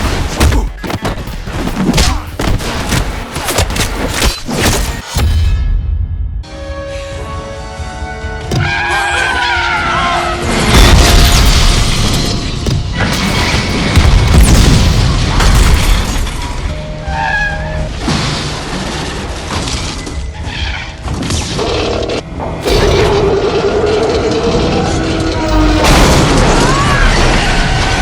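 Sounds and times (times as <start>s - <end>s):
dramatic score music: 0.0s - 28.0s
heavy booms and crashes: 10.6s - 16.6s, 25.5s - 28.0s.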